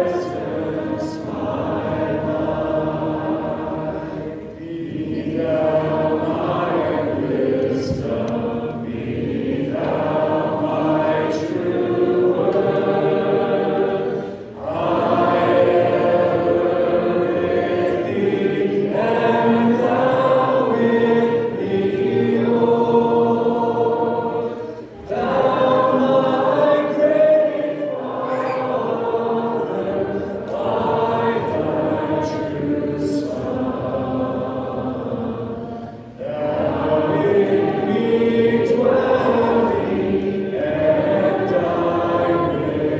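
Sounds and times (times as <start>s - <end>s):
congregation singing a hymn: 0.0s - 42.9s.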